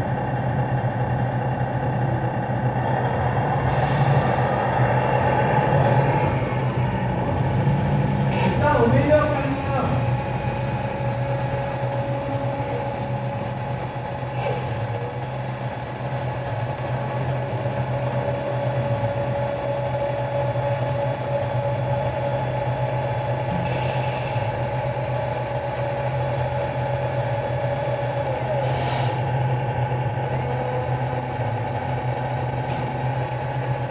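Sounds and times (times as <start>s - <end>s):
constant whine: 0.0s - 33.9s
model truck motor humming: 7.0s - 33.9s.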